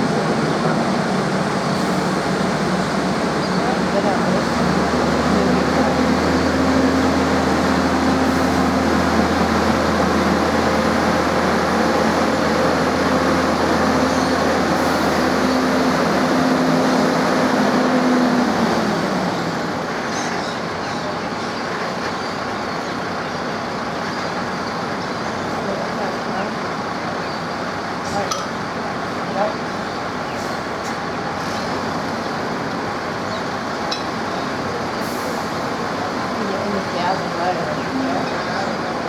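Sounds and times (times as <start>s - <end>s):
vehicle engine humming: 0.0s - 20.4s.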